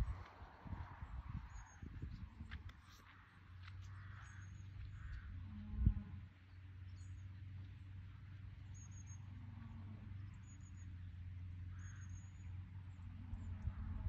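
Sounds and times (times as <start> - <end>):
low hum: 0.0 - 14.0
bird chirps: 8.6 - 9.3, 10.3 - 12.6.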